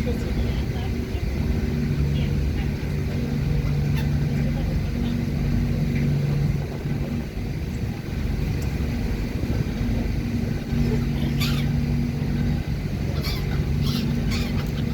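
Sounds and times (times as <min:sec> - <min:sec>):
ship engine droning: 0:00.0 - 0:14.9
seagull squawking: 0:03.2 - 0:05.1, 0:10.4 - 0:14.9.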